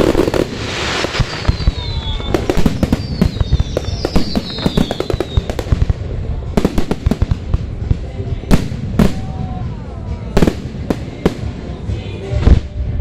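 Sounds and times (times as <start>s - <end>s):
falling firework whistles: 0.0s - 5.5s
fireworks bangs and crackling: 0.0s - 13.0s.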